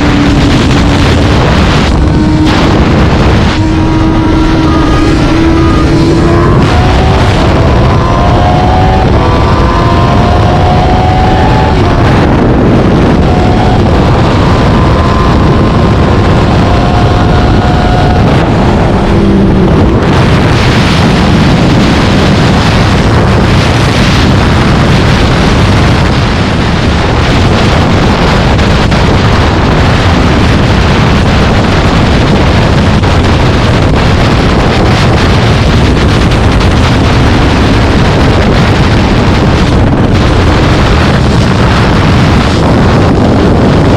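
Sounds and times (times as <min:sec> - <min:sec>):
vehicle and road noise: 0:00.0 - 0:43.9
wind rush on microphone: 0:00.0 - 0:43.9.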